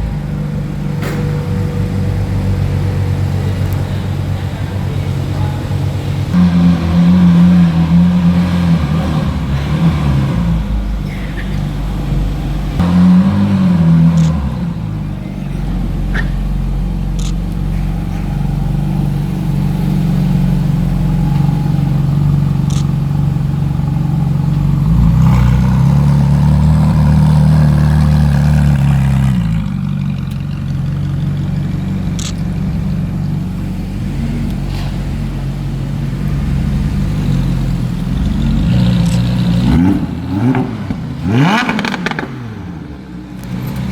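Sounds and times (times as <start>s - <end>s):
sports car engines running: 0.0s - 43.9s
sharp clicks: 17.2s - 17.6s, 22.6s - 23.0s, 32.1s - 32.6s.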